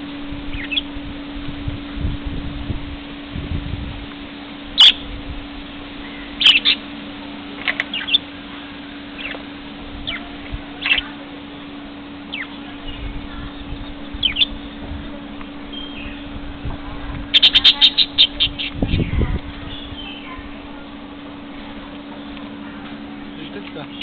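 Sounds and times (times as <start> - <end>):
steady low hum: 0.0 - 24.0
lovebirds chirping: 0.5 - 1.0, 4.8 - 5.1, 6.0 - 6.9, 7.7 - 16.5, 17.2 - 20.8, 22.0 - 24.0.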